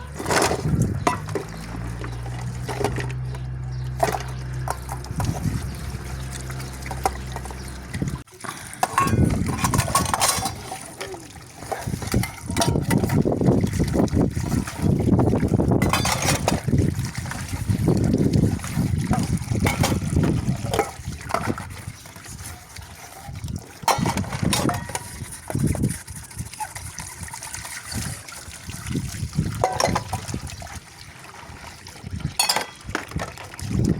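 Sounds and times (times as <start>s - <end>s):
water running and splashing: 0.0s - 33.9s
dishes clinking: 0.1s - 1.6s, 8.8s - 11.0s, 11.7s - 13.1s, 15.8s - 16.6s, 23.8s - 25.2s, 29.6s - 30.2s, 32.4s - 32.9s.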